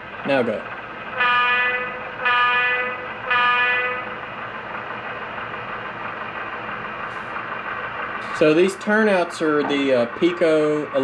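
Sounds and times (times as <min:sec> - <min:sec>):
model locomotive horn blasts: 0:01.2 - 0:04.1.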